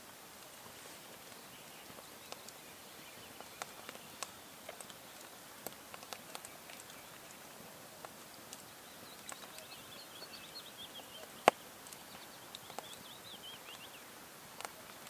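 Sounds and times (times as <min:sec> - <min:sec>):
faint outdoor hiss: 0:00.0 - 0:15.0
small bird twittering: 0:08.6 - 0:14.1.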